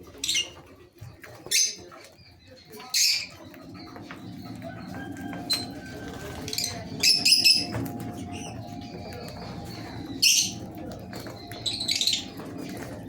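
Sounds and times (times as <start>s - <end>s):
birds chirping shrilly: 1.4s - 13.0s
steady low hum: 3.5s - 13.0s.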